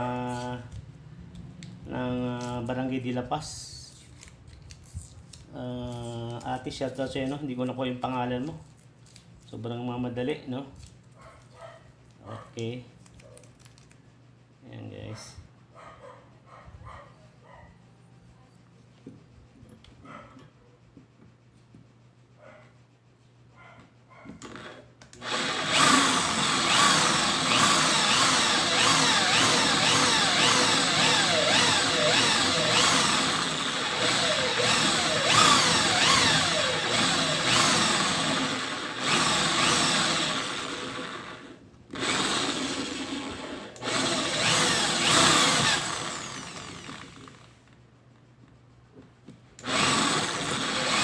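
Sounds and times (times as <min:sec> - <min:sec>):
electric drill running: 0:24.4 - 0:47.5, 0:49.6 - 0:51.0.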